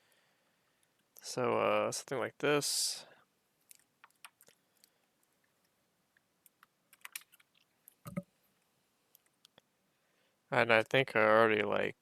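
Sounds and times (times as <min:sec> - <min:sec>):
faint small clicks and taps: 0:03.6 - 0:09.7.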